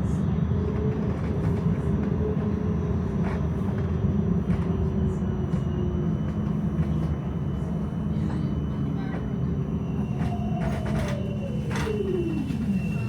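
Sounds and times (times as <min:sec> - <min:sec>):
tram rumbling on tracks: 0:00.0 - 0:13.0.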